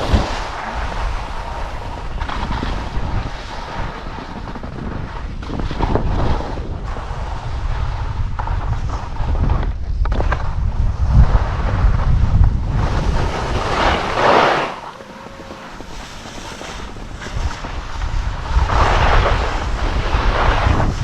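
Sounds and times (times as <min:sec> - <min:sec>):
skis scraping over snow: 0:00.0 - 0:21.0
wind buffeting microphone: 0:00.0 - 0:21.0.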